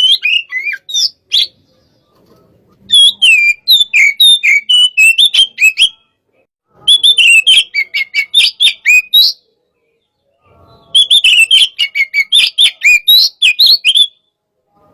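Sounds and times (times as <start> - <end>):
bird singing whistled notes: 0.0 - 2.0, 2.9 - 6.2, 6.8 - 14.4.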